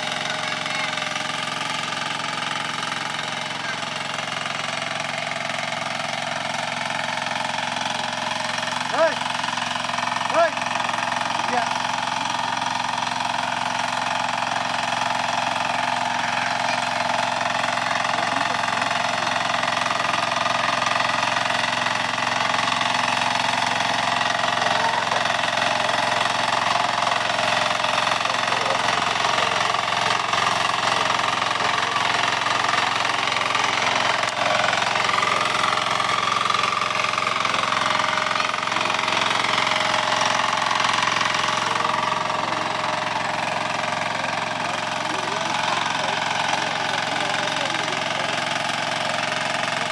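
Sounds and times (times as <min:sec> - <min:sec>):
diesel weeder engine running: 0:00.0 - 0:49.9.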